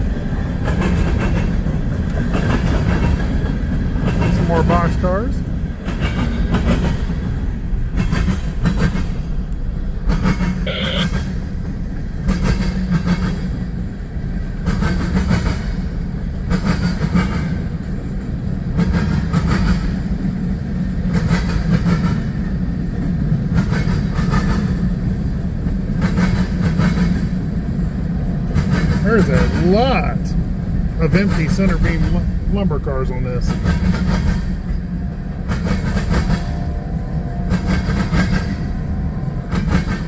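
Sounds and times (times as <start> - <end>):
wheels clicking over rail joints: 0.0 - 32.5, 33.5 - 40.0
freight train rumbling past: 0.0 - 40.0.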